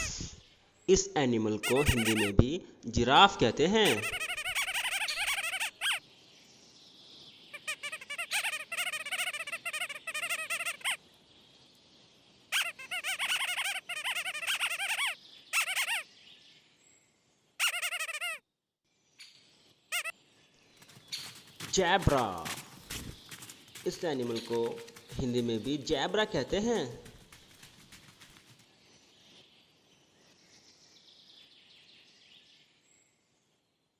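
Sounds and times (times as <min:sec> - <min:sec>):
high-pitched chirping calls: 0:01.6 - 0:02.5, 0:03.8 - 0:06.0, 0:07.5 - 0:11.0, 0:12.5 - 0:16.1, 0:17.6 - 0:18.4, 0:19.9 - 0:20.2, 0:20.8 - 0:28.5.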